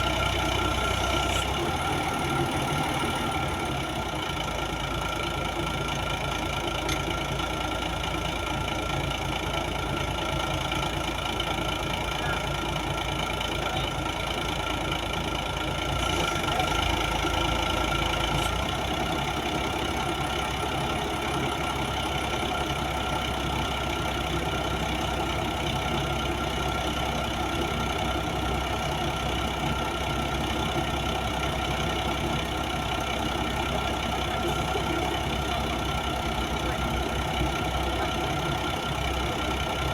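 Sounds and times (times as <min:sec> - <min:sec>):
crane diesel engine running: 0:00.0 - 0:39.9.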